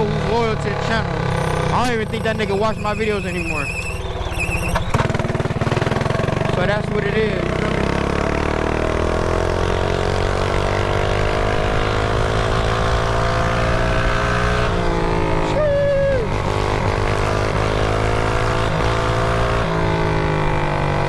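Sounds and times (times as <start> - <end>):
mini bike engine running: 0.0 - 13.4
short high tone: 1.0 - 4.9.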